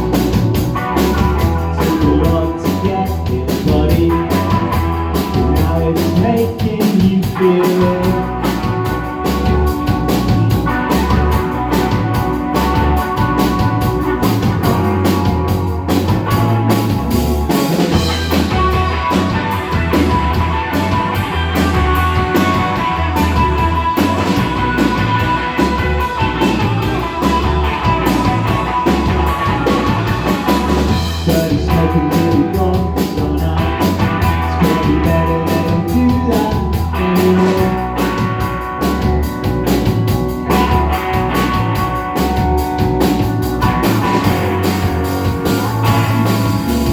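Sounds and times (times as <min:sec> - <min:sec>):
rock band playing live: 0:00.0 - 0:46.9.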